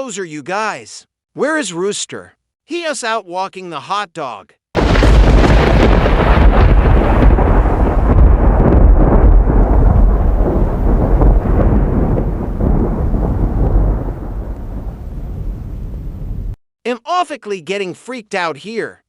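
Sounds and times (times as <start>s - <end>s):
thunder rumbling: 4.8s - 16.6s.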